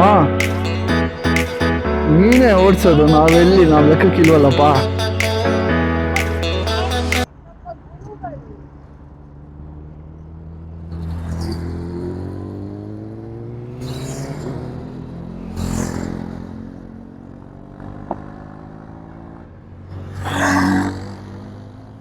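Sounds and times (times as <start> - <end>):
vehicle engine accelerating: 8.5 - 22.0.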